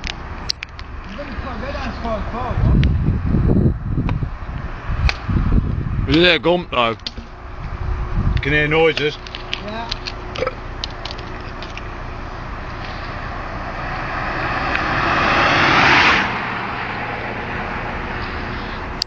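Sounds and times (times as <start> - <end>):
car engine revving: 6.9 - 19.0.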